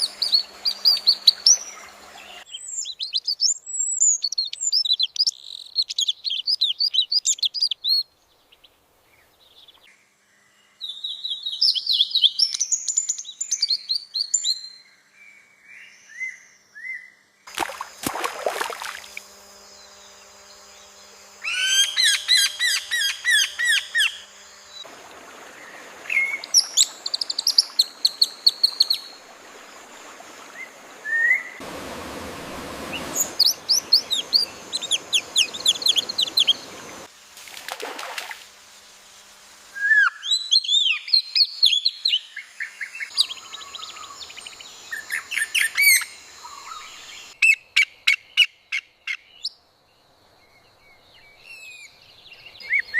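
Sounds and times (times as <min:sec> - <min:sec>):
songbirds chirping: 0:00.0 - 0:17.5, 0:18.4 - 0:37.1, 0:40.1 - 0:52.9
rush of noise: 0:31.6 - 0:37.0.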